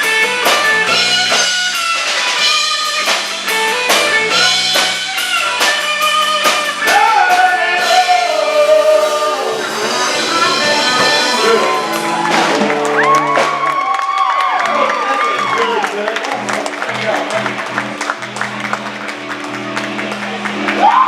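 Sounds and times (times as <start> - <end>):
live band with guitar: 0.0 - 21.0
person singing lead: 6.8 - 12.0
voices singing harmony: 6.8 - 12.2.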